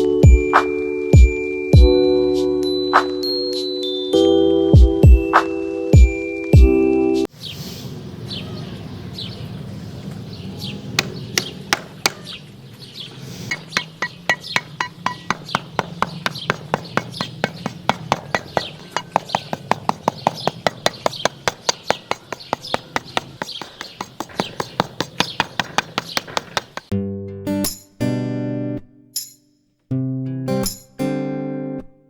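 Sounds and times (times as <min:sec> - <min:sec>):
birds chirping: 0:07.3 - 0:26.9
sharp taps: 0:11.0 - 0:12.3, 0:13.5 - 0:26.9.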